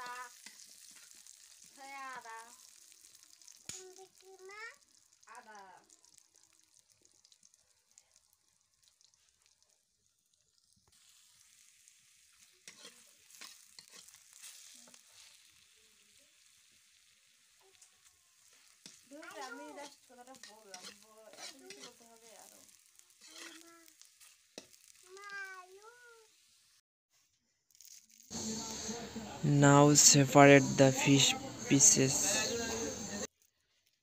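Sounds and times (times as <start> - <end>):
faint sizzle of frying: 0.0 - 26.8, 27.7 - 34.0
metal spatula scraping and clicking: 12.4 - 15.3, 18.5 - 19.0, 19.7 - 22.1, 23.1 - 24.9.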